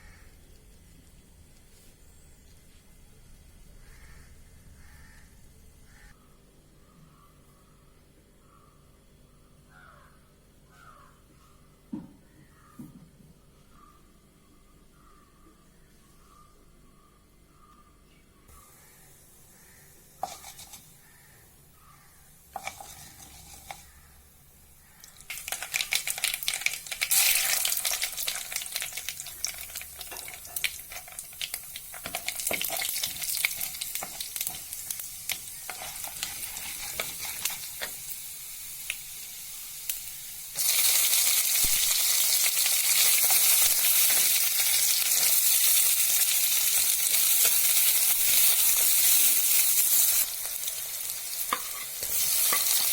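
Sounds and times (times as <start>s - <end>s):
food sizzling in a pan: 19.2s - 21.1s, 22.4s - 24.1s, 25.0s - 52.9s.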